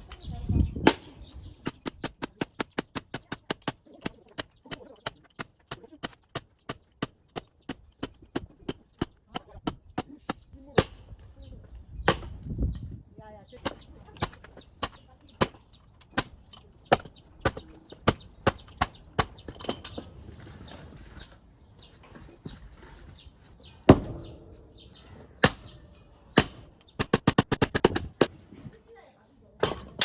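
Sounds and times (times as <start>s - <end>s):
axe striking firewood: 0.8s - 11.2s, 12.1s - 12.4s, 23.9s - 24.4s, 26.4s - 28.6s, 29.6s - 30.0s.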